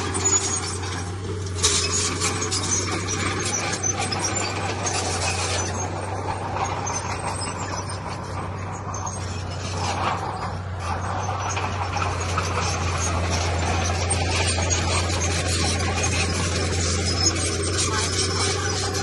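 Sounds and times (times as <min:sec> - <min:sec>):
diesel machinery engine drone: 0:00.0 - 0:19.0
rattling and scraping: 0:00.0 - 0:19.0.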